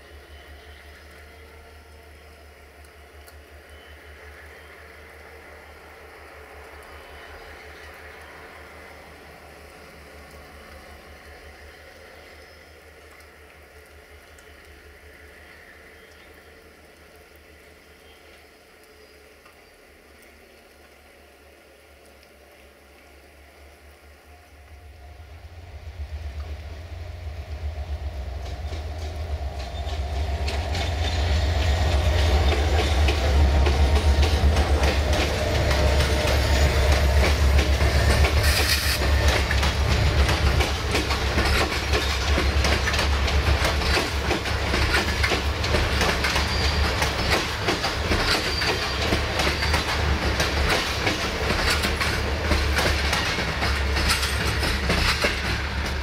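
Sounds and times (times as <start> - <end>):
diesel locomotive engine hum: 0.0 - 20.0, 22.4 - 56.0
wheels clattering over rail joints: 28.4 - 56.0
wheel squeal: 46.2 - 47.6, 48.2 - 49.9.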